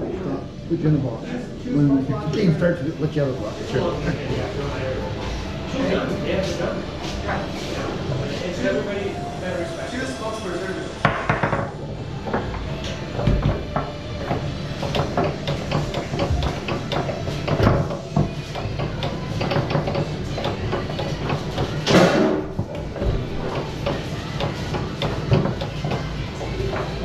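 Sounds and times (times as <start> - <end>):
foosball ball clacking: 11.0 - 27.0
foosball rods knocking: 11.0 - 27.0.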